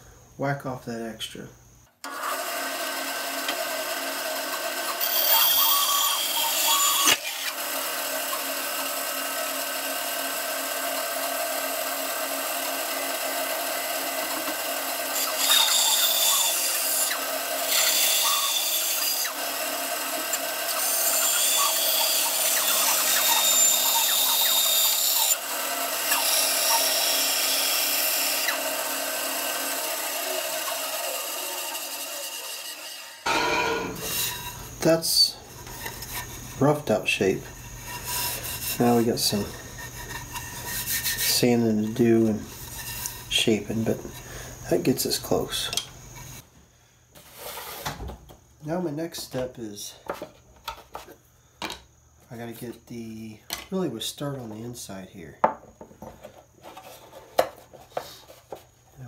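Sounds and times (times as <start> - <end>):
bandsaw cutting wood: 2.0 - 44.8.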